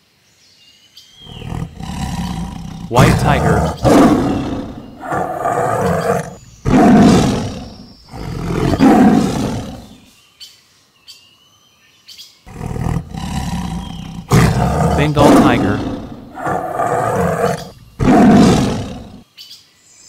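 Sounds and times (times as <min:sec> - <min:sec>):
tiger roaring: 0:01.2 - 0:10.0, 0:12.5 - 0:19.2
faint bird chirps: 0:13.6 - 0:14.9.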